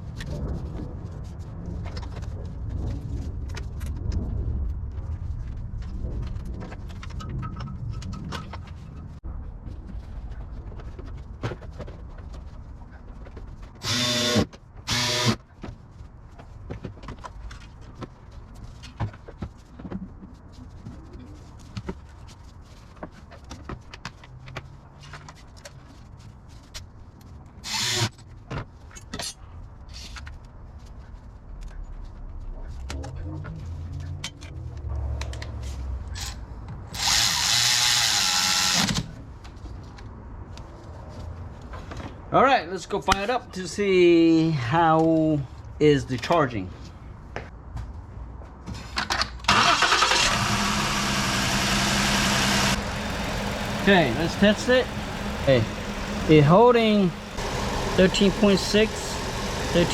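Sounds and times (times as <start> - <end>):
low rumble: 0.0 - 10.7
loud mechanical bursts: 13.8 - 15.4, 36.9 - 39.0, 49.5 - 59.9.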